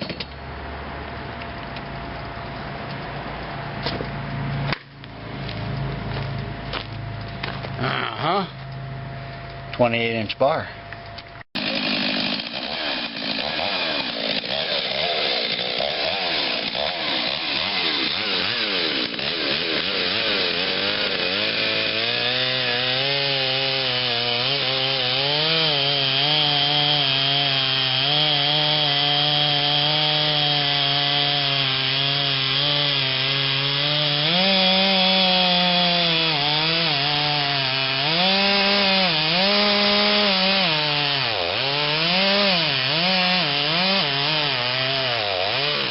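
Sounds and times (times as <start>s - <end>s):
chainsaw cutting wood: 11.6s - 45.9s.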